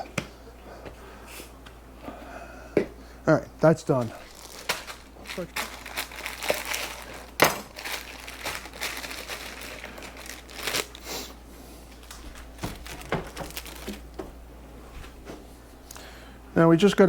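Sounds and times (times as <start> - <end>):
plastic packaging crinkling: 4.2 - 11.1, 11.9 - 14.2.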